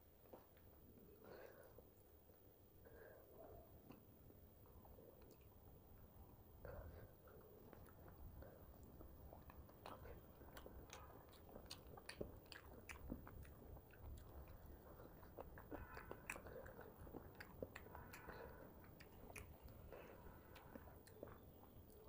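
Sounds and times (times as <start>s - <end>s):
close chewing: 3.8s - 6.2s, 6.8s - 22.0s
wet mouth clicks and lip smacks: 9.4s - 14.7s, 15.4s - 21.4s.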